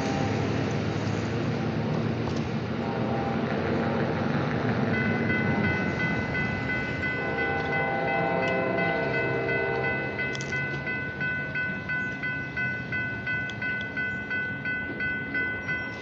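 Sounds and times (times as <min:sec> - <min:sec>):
passenger train rumbling: 0:00.0 - 0:16.0
train horn chord: 0:02.8 - 0:04.3, 0:05.2 - 0:10.8.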